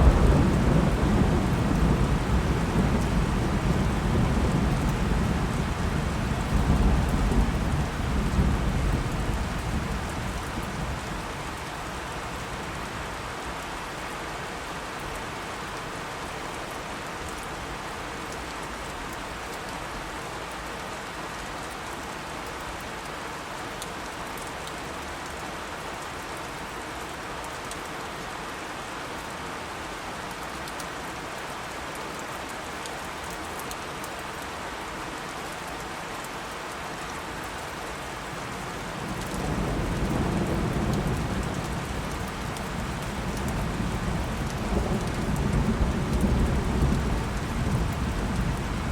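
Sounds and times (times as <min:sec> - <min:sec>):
low thunder rumble: 0:00.0 - 0:11.6
heavy rain: 0:00.0 - 0:48.9.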